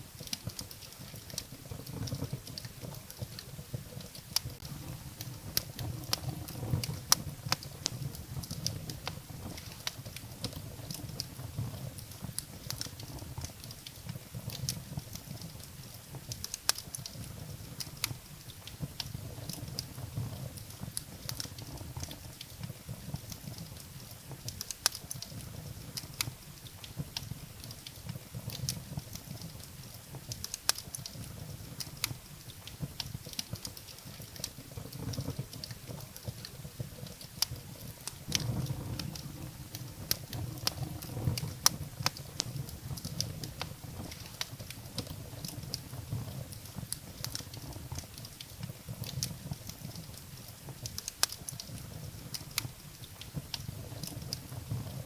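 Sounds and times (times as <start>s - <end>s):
fire crackling and popping: 0.0s - 55.0s
low fire rumble: 0.0s - 55.0s.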